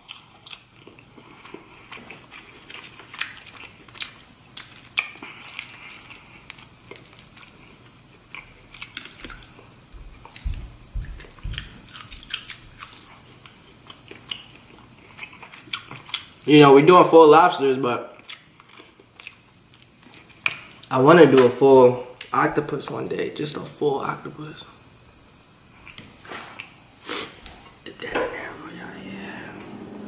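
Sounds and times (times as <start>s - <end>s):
wet chewing and lip-smacking: 0.0s - 16.4s, 18.2s - 20.9s.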